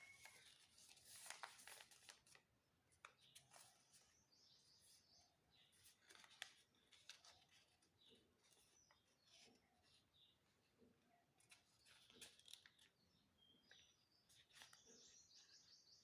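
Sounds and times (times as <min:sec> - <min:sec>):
paper rustling and creasing: 0:00.0 - 0:04.2, 0:05.7 - 0:10.1, 0:11.4 - 0:13.0, 0:14.2 - 0:15.2.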